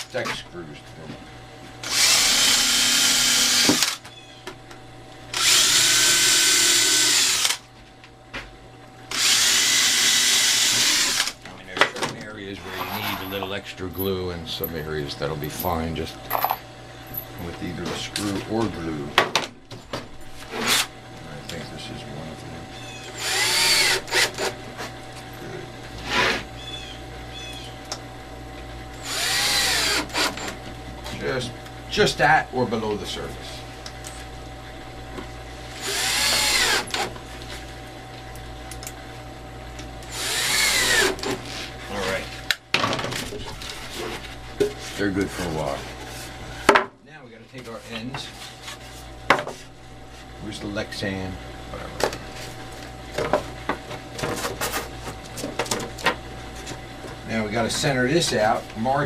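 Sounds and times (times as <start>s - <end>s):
power drill drilling: 1.8s - 4.0s, 5.3s - 7.6s, 9.1s - 11.4s, 23.1s - 24.5s, 29.0s - 30.6s, 35.8s - 37.0s, 40.1s - 41.3s.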